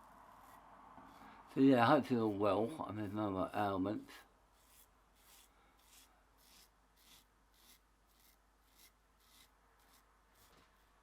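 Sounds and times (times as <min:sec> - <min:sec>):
razor scraping stubble: 0:04.5 - 0:11.0.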